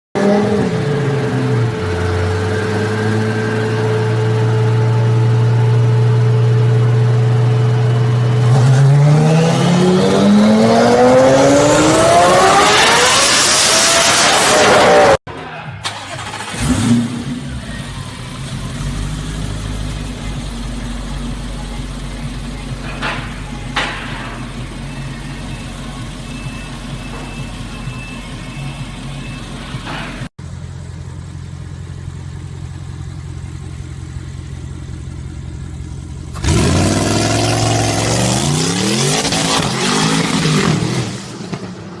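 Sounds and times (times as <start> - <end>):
car engine idling: 3.9 - 8.6, 15.6 - 38.4
car engine revving hard: 8.4 - 15.2, 36.3 - 41.6.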